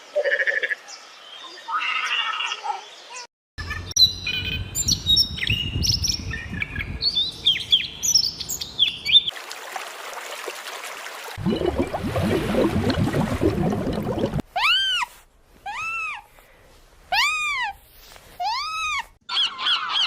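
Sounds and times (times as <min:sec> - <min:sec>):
birds chirping and whistling: 0:03.9 - 0:09.3.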